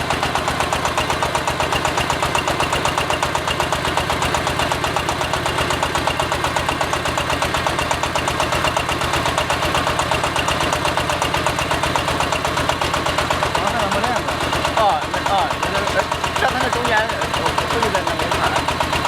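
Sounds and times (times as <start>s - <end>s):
diesel engine pulsing steadily: 0.0s - 19.0s.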